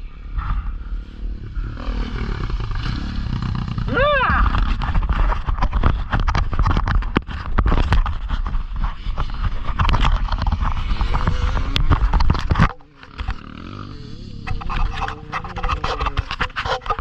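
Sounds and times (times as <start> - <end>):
dirt bike engine: 0.0 - 7.5, 8.3 - 17.0
wind rumble: 0.0 - 17.0
knocks and rattles on microphone: 3.6 - 13.5, 14.4 - 17.0.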